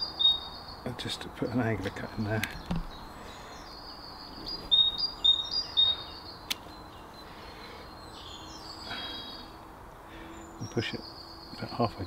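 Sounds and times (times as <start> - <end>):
songbird whistling: 0.0 - 0.8, 2.9 - 7.2
secateurs snipping stem: 6.5 - 6.7.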